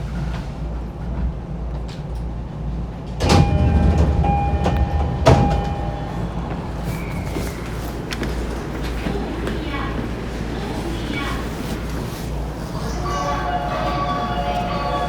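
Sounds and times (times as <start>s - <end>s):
train low rumble: 0.0s - 15.0s
train clank: 0.1s - 10.1s.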